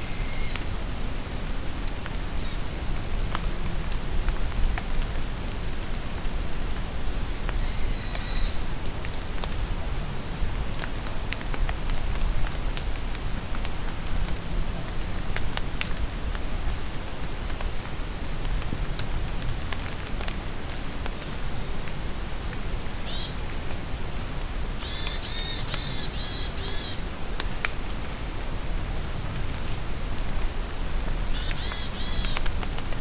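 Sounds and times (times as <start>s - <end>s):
steady rain in a forest: 0.0s - 33.0s
raindrops ticking: 10.5s - 22.8s, 29.5s - 33.0s.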